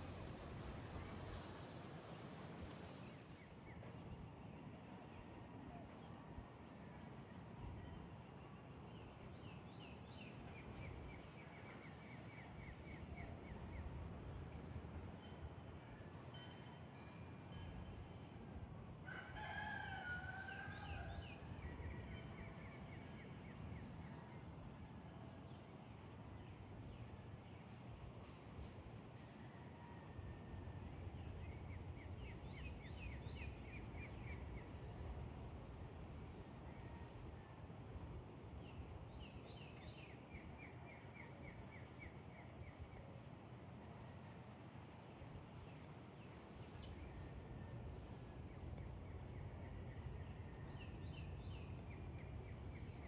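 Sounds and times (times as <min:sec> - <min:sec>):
low outdoor rumble: 0:00.0 - 0:03.4
songbird singing: 0:00.0 - 0:06.2, 0:20.4 - 0:24.7, 0:30.6 - 0:35.6, 0:38.5 - 0:43.1, 0:45.6 - 0:53.0
rooster crowing: 0:19.0 - 0:21.5.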